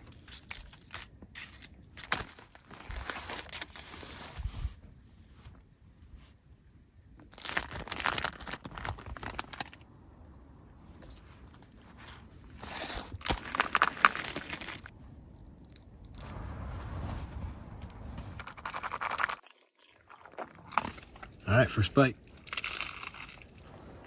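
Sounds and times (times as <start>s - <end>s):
plastic packaging crinkling and tearing: 0.0s - 4.4s, 7.2s - 9.8s, 12.5s - 15.0s, 22.3s - 23.9s.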